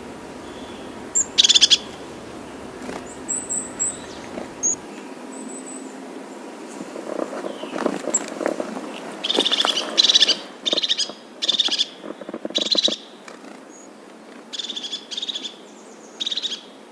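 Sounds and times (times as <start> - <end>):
bird calling in rapid trills: 0.0 - 4.8
low rustling and clicks: 0.0 - 4.8.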